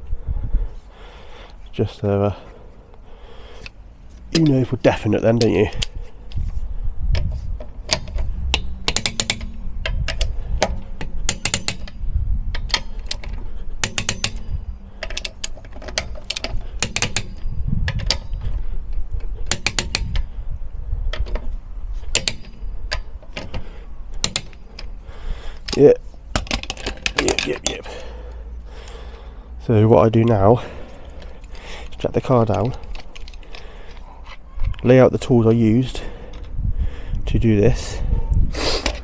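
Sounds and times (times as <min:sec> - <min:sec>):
torque wrench ratchet clicking: 0:03.6 - 0:06.4, 0:07.9 - 0:28.0.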